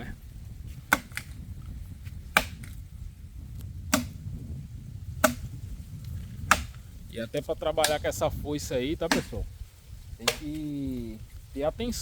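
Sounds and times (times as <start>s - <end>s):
billhook chopping dry wood: 0.8s - 1.4s, 2.1s - 2.8s, 3.9s - 4.3s, 5.1s - 5.6s, 6.4s - 6.8s, 7.8s - 8.1s, 9.0s - 9.4s, 10.2s - 10.6s.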